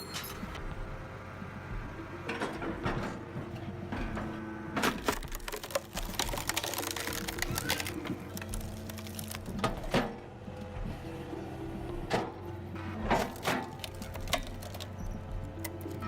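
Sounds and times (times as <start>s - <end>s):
machine drone: 3.9s - 16.0s
logs cracking as split: 4.9s - 10.1s, 13.2s - 16.0s.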